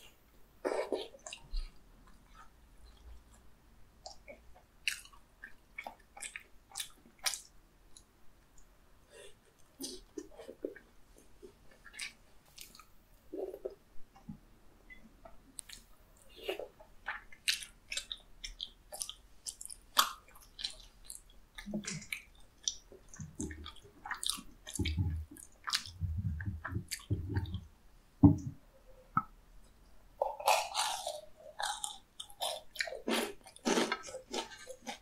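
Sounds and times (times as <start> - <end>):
chewing with wet mouth clicks: 4.0 - 8.7, 11.8 - 13.7, 14.9 - 27.7.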